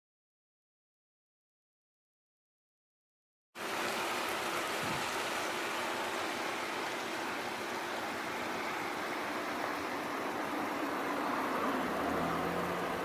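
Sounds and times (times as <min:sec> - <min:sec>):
stream water flowing: 0:03.6 - 0:13.0.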